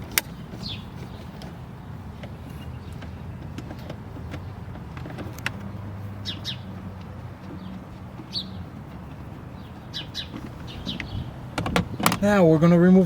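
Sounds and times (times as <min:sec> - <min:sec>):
high bird chirps: 0:06.2 - 0:06.8, 0:09.6 - 0:11.4.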